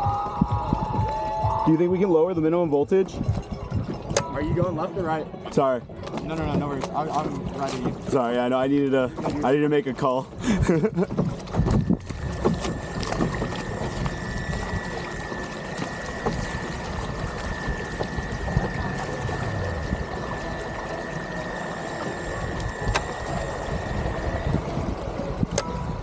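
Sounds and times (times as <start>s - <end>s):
wind on microphone: 0.0s - 9.5s, 10.3s - 26.0s
water noise: 0.0s - 26.0s
high-pitched whine: 11.8s - 26.0s.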